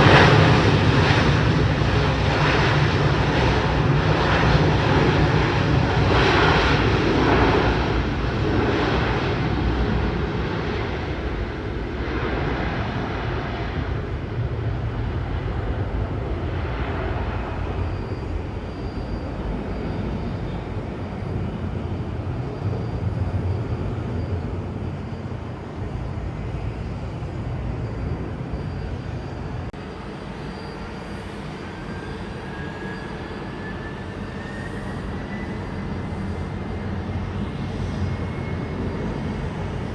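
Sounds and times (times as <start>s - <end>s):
jet airliner engines passing: 0.0s - 39.9s.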